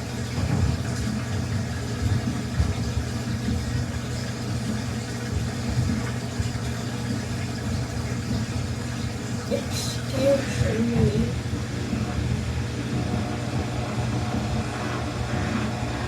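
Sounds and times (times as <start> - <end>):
washing machine running: 0.0 - 16.0.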